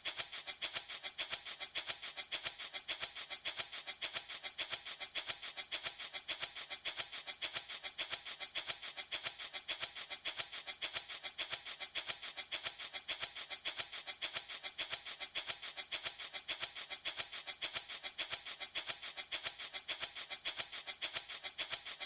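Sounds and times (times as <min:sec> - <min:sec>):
baby rattle shaking: 0:00.0 - 0:22.0.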